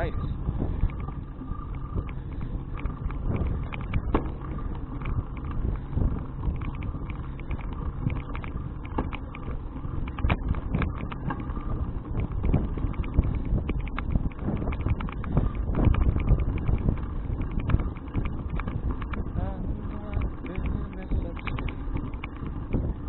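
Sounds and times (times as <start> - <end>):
bicycle riding rumble: 0.0 - 23.0
small clicks and rattles: 0.0 - 23.0
wind on microphone: 0.0 - 23.0.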